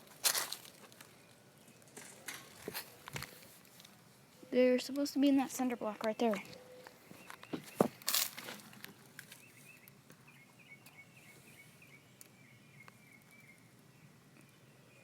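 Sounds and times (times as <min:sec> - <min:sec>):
faint outdoor ambience: 0:00.0 - 0:15.0
rustle: 0:00.0 - 0:15.0.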